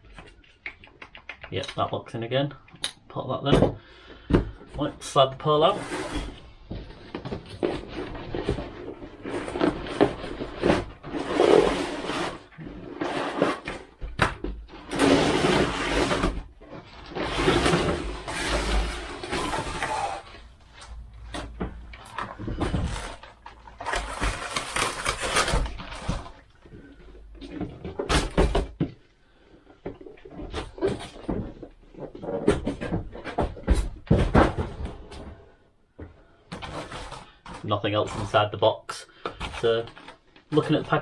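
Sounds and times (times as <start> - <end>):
cardboard and plastic rustling: 5.6 - 35.6.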